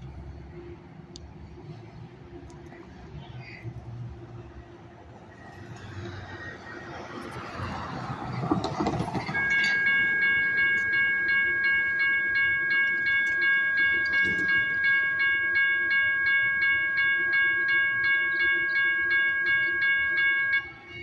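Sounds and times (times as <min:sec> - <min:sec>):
train noise rush: 0:04.2 - 0:11.1
rail warning bell ringing: 0:06.6 - 0:21.0.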